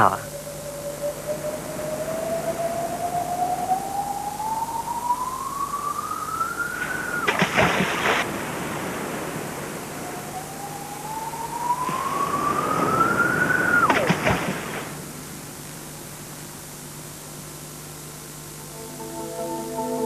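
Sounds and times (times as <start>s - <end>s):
rising whistling tone: 0.0s - 8.1s, 9.8s - 14.0s, 18.5s - 20.0s
water splash: 7.2s - 8.5s, 13.9s - 14.9s.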